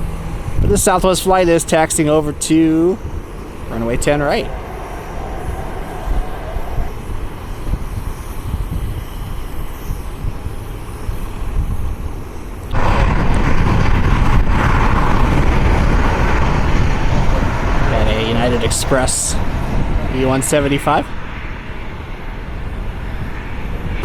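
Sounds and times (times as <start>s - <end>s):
jet engines rumbling: 0.0s - 24.0s
wind: 0.0s - 24.0s
loud rushing noise: 1.9s - 9.0s, 12.0s - 24.0s.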